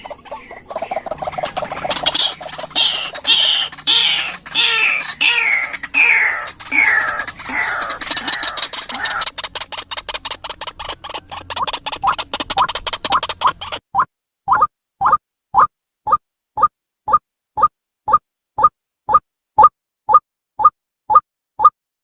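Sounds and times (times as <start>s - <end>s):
waterhen calling: 0.0s - 16.2s.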